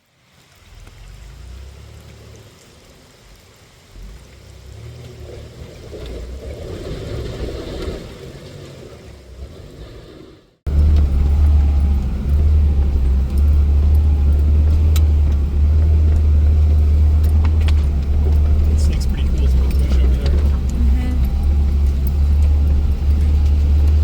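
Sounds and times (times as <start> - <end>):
off-road vehicle engine: 0.0 - 24.0
loud low engine drone: 10.7 - 24.0.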